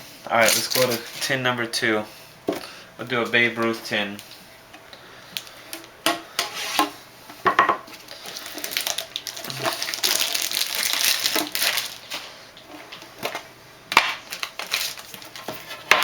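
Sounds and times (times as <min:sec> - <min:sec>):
plastic wrapping rustling: 0:00.3 - 0:01.6, 0:07.8 - 0:16.0.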